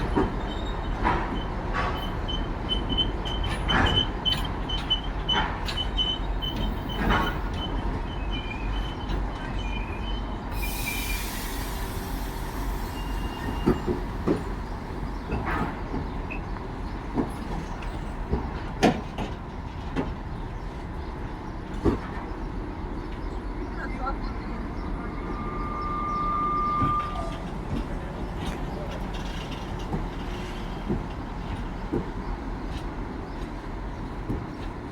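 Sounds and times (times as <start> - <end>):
faint thin brake squeal: 3.9 - 14.2, 25.1 - 27.5
air hiss: 10.6 - 13.6
train wheel knocks: 13.4 - 20.2, 26.8 - 33.5, 34.1 - 34.8.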